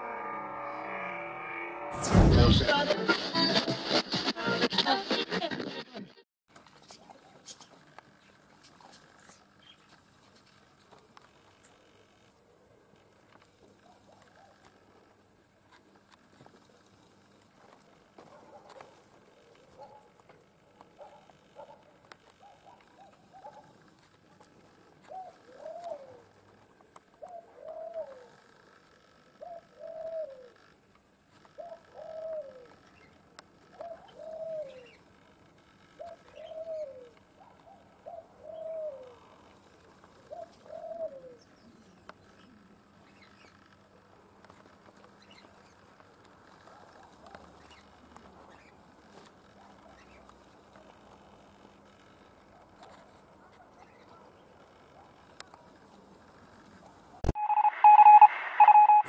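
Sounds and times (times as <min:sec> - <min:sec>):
bird calling: 0:25.0 - 0:26.4, 0:27.2 - 0:28.5, 0:29.3 - 0:30.7, 0:31.4 - 0:35.1, 0:36.0 - 0:39.4, 0:40.2 - 0:43.7.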